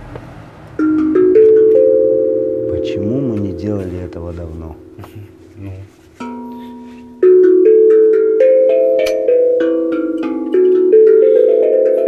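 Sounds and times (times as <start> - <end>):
steel tongue drum melody: 0.7 - 12.0.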